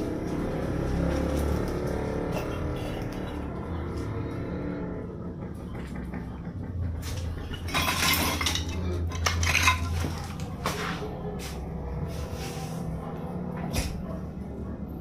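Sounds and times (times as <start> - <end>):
debris clinking and crunching: 7.1 - 10.9.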